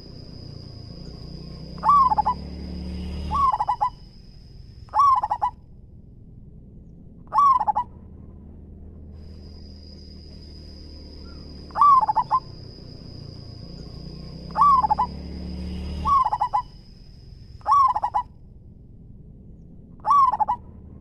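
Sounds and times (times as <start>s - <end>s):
dove cooing: 0.0s - 4.0s, 4.9s - 5.6s, 7.3s - 7.9s, 11.2s - 13.5s, 14.4s - 15.2s, 16.0s - 16.8s, 17.6s - 18.3s, 20.0s - 20.6s.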